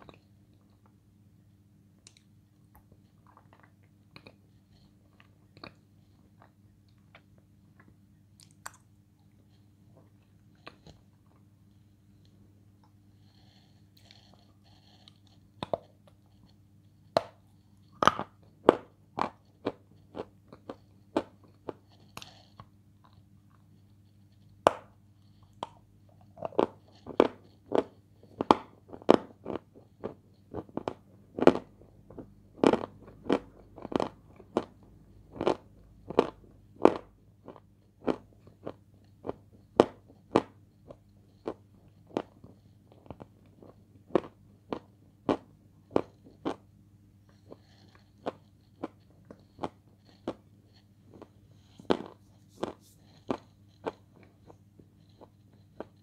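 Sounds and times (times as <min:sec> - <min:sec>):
faint steady hum: 0:00.0 - 0:56.0
crunchy chewing: 0:13.2 - 0:24.5, 0:25.2 - 0:46.7, 0:47.3 - 0:56.0.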